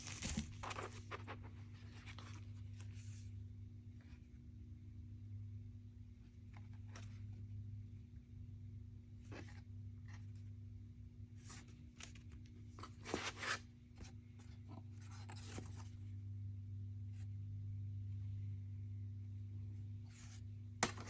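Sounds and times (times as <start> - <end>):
plastic wrapping rustling: 0.0 - 1.0.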